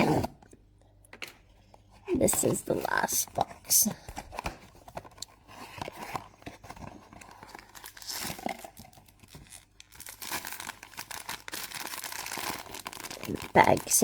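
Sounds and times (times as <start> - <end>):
cardboard packaging tearing and crinkling: 4.4 - 14.0.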